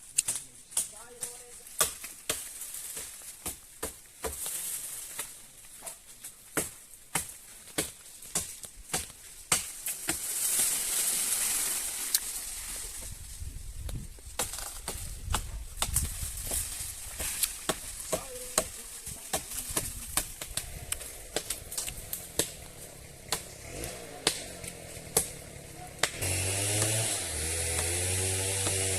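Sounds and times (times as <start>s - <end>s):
machete chopping wood: 0.2s - 4.6s, 6.6s - 10.3s, 14.4s - 28.9s
rustling hiss: 9.8s - 23.2s.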